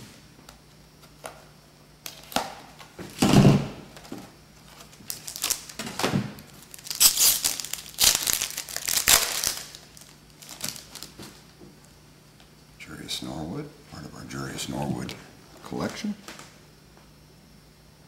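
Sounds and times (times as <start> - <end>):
packaging torn and crinkled: 4.7 - 5.9, 6.5 - 11.3.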